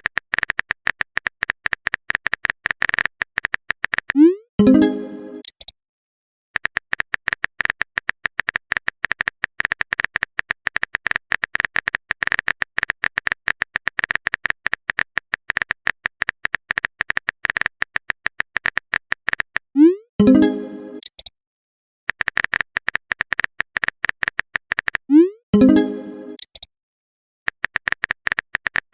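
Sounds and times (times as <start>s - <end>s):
keyboard typing clicks: 0.0s - 5.8s, 6.6s - 19.6s, 20.2s - 21.3s, 22.1s - 26.7s, 27.5s - 28.9s.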